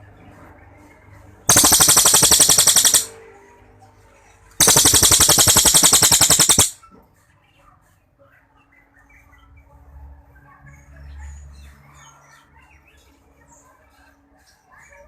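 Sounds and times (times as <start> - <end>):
songbird rattling trills: 1.5 - 3.1, 4.6 - 6.8.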